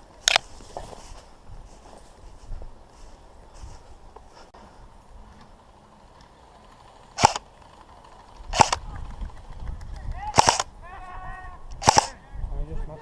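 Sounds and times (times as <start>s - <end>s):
airsoft gun shots: 7.2s - 7.4s, 8.5s - 8.8s, 10.3s - 10.7s, 11.8s - 12.2s.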